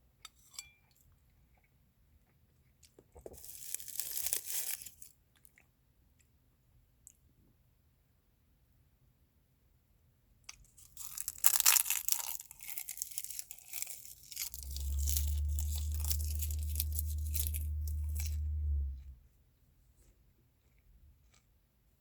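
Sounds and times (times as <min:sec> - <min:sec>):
crackling crinkling crunches: 0:02.8 - 0:05.6, 0:10.8 - 0:19.2
steady low hum: 0:14.4 - 0:19.3.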